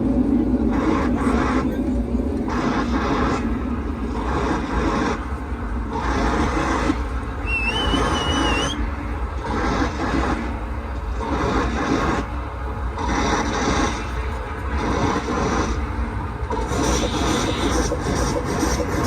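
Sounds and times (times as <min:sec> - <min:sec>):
wavering high whistle: 0:07.4 - 0:08.8.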